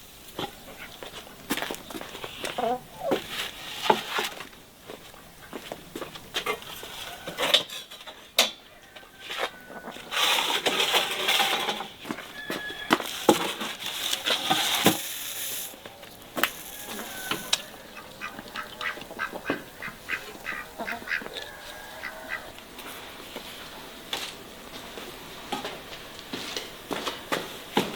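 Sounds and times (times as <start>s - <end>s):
ducks quacking: 16.4s - 22.6s.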